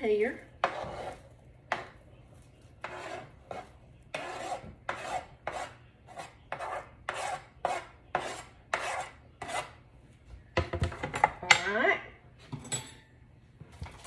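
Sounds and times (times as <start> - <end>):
utensil scraping a dish: 0.5 - 2.0, 2.8 - 9.8.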